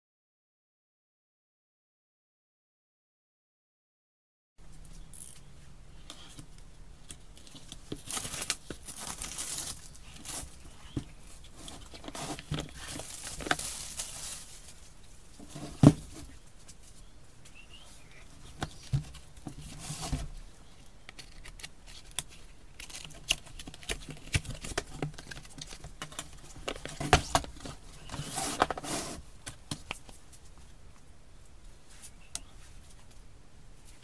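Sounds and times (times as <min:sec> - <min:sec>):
packaging rustling: 0:07.4 - 0:16.2.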